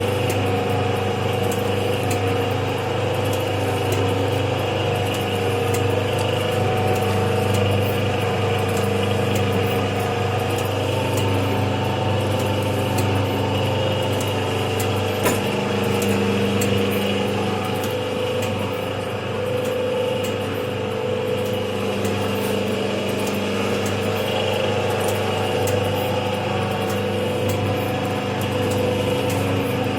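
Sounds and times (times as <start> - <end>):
mechanical ticks: 0.0 - 29.9
packing machine motor hum: 0.0 - 29.9
sharp machine click: 14.2 - 16.8.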